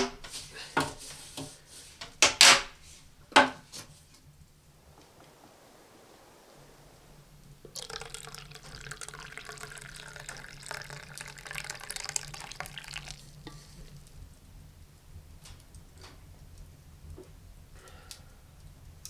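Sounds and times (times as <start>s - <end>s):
water pouring: 6.6s - 13.6s.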